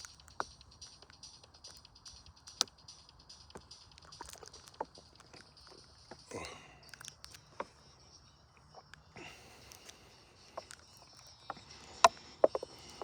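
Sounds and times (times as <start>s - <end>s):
footsteps crunching on trail: 8.6s - 13.0s.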